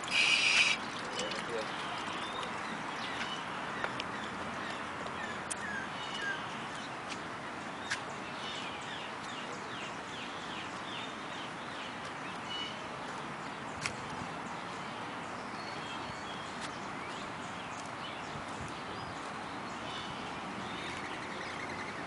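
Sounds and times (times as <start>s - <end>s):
bird chirping: 0.0s - 6.9s.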